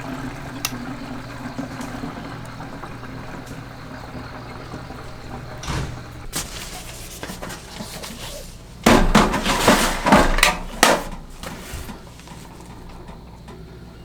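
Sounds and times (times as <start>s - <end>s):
clattering knocks: 4.2s - 13.2s.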